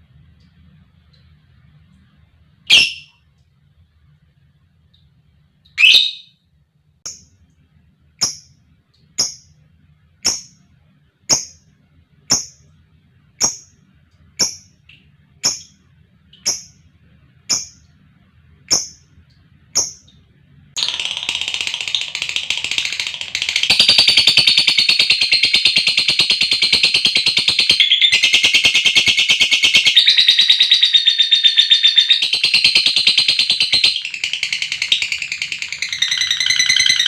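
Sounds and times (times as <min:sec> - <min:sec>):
lovebird harsh calls: 0:02.7 - 0:03.1, 0:05.8 - 0:06.3
lovebird sharp high chirps: 0:02.7 - 0:03.2, 0:05.8 - 0:06.3, 0:08.2 - 0:08.5, 0:09.2 - 0:09.5, 0:16.4 - 0:16.8, 0:17.5 - 0:17.8, 0:18.7 - 0:19.0, 0:19.8 - 0:20.1.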